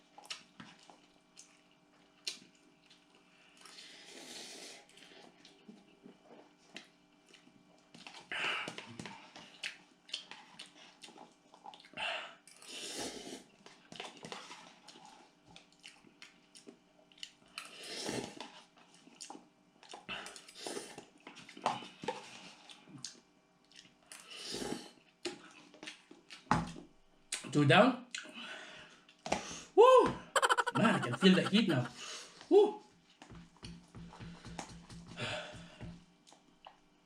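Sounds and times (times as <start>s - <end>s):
chewing: 0.1s - 3.7s, 4.9s - 8.3s, 9.3s - 12.6s, 13.6s - 17.7s, 18.3s - 21.8s, 22.6s - 24.2s, 25.2s - 26.5s.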